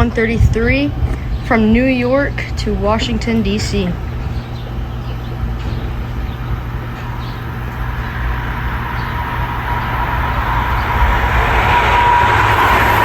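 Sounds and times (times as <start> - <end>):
passenger train rushing: 0.0 - 13.0
steady high tone: 4.8 - 13.0.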